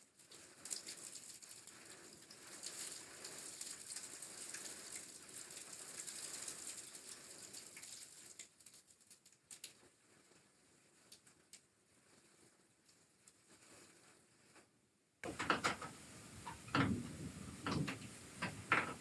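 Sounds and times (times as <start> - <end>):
snow pattering against house: 0.0 - 14.7.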